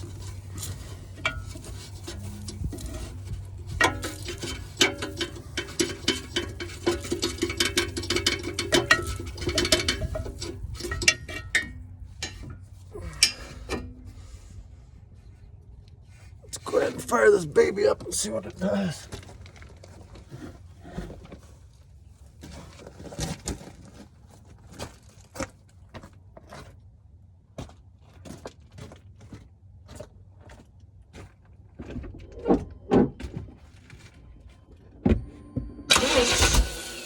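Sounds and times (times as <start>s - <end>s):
car engine cranking: 0.0s - 14.4s, 35.2s - 37.0s.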